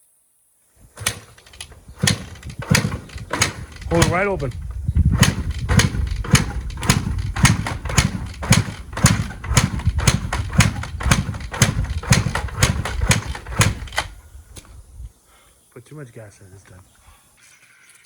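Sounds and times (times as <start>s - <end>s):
two-stroke engine sputtering: 0.8s - 14.7s.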